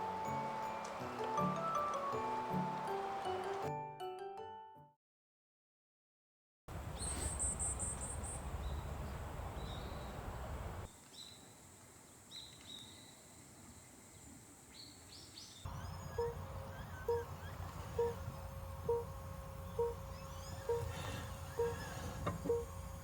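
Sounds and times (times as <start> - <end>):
outdoor background hiss: 0.0 - 3.7, 6.7 - 23.0
small birds chirping: 6.7 - 23.0
rapid high bird trill: 15.7 - 22.7.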